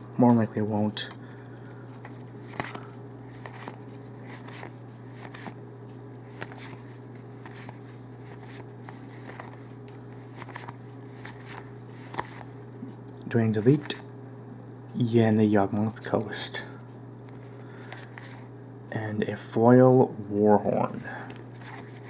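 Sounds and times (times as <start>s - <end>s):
card pack rustling and crinkling: 2.0s - 5.6s, 6.2s - 12.6s, 21.3s - 22.0s.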